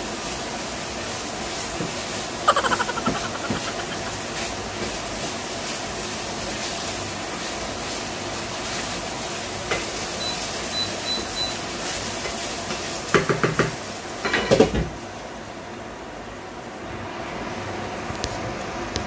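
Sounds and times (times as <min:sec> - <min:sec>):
meatballs sizzling in a frying pan: 0:05.2 - 0:15.0.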